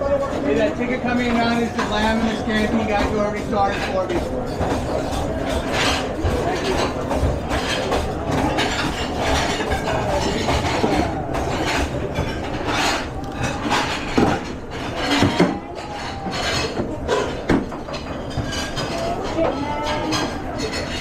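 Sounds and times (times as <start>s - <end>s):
kitchen background roar: 0.0s - 21.0s
clatter of pans and plates: 0.1s - 21.0s.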